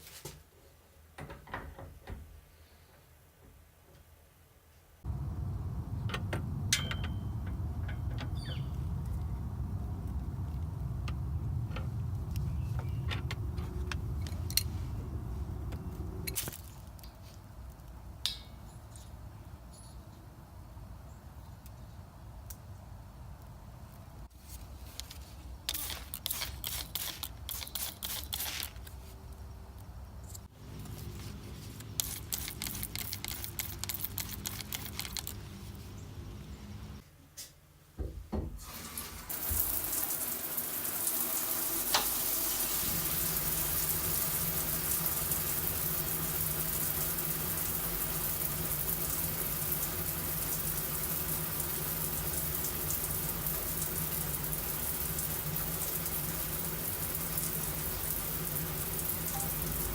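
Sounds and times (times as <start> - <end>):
steady low hum: 5.0 - 16.4
water running from a tap: 38.7 - 59.9.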